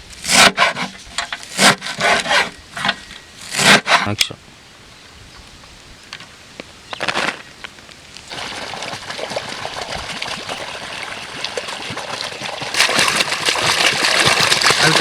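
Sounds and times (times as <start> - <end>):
water pouring and trickling: 8.2 - 15.0.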